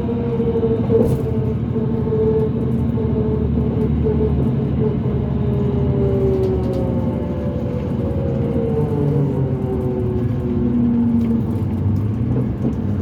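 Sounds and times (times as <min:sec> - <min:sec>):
bus drivetrain rumble: 0:00.0 - 0:13.0.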